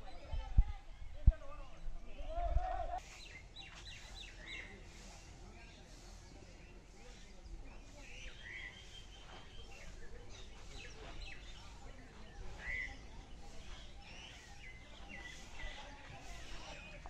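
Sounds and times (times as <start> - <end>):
wild birds chirping: 0.0 - 17.0.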